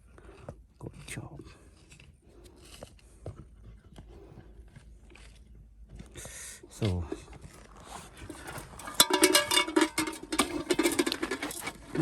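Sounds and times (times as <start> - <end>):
hard objects clinking and rattling: 8.0 - 12.0.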